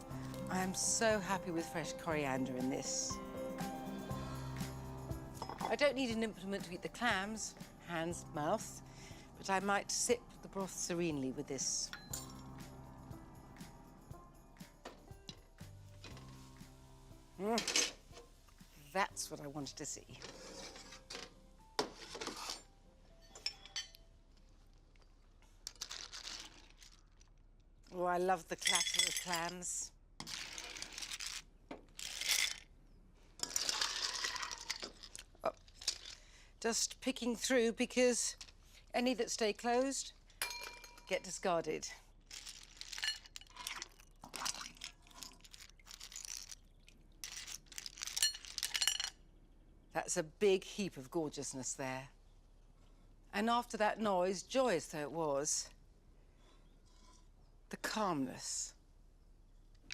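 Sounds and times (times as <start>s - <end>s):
clam shells clattering: 25.6s - 27.0s, 32.0s - 32.6s, 33.4s - 36.2s, 42.3s - 49.1s
clam shells clinking on cookware: 28.5s - 31.4s, 40.4s - 41.3s, 42.3s - 46.6s, 47.2s - 49.1s.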